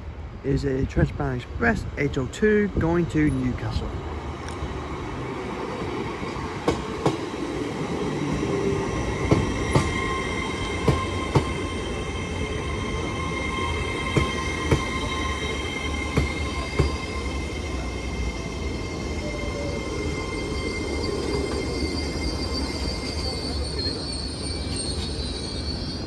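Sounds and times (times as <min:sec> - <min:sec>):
train rumbling: 0:00.0 - 0:26.0
train wheel squeal: 0:05.7 - 0:26.0.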